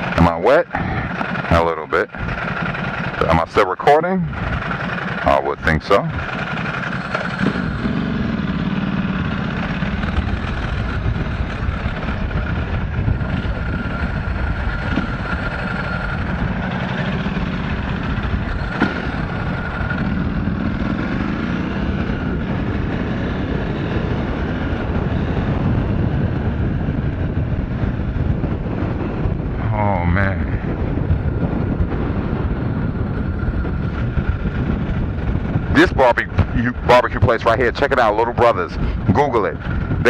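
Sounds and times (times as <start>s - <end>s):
motorcycle engine running: 0.0s - 40.0s
wind and road noise: 0.0s - 40.0s.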